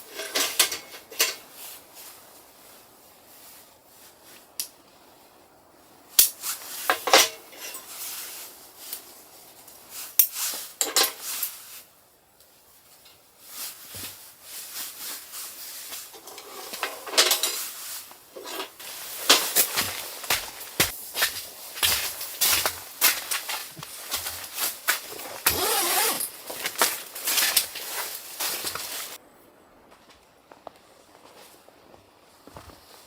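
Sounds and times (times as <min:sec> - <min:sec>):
metal utensils clinking on a pan: 0:00.1 - 0:01.5, 0:10.8 - 0:11.2, 0:16.1 - 0:17.7.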